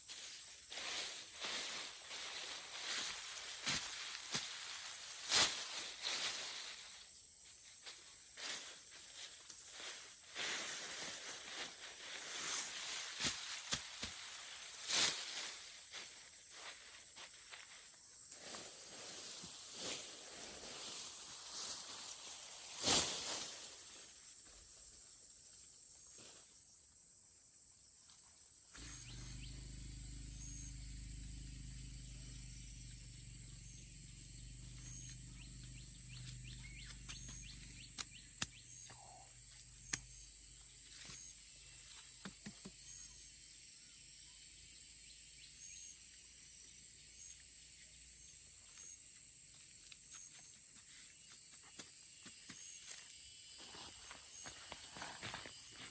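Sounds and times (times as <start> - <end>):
high insect drone: 28.7 - 55.9
low steady hum: 28.8 - 40.9
sharp clicks: 36.1 - 39.0, 39.8 - 40.2.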